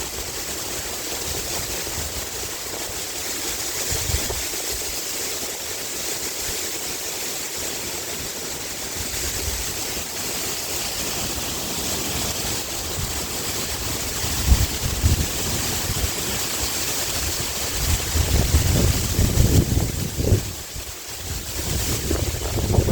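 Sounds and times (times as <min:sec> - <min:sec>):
wind rustling bamboo leaves: 0:00.0 - 0:22.9
wind buffeting microphone: 0:00.1 - 0:05.0, 0:12.3 - 0:22.9.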